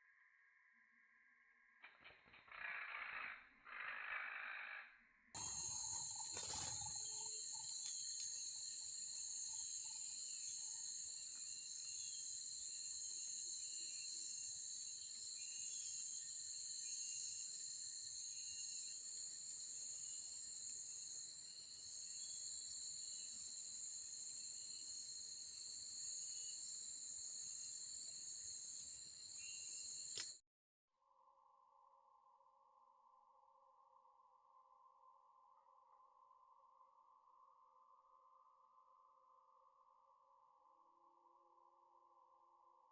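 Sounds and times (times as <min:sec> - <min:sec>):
insects droning: 0:05.4 - 0:30.4.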